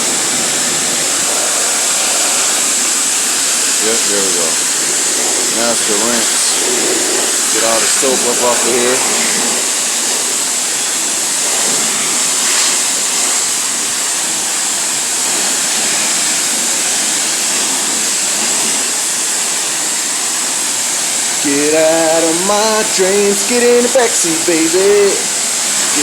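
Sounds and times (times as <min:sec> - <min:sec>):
pressure washer spraying water: 0:00.0 - 0:26.0.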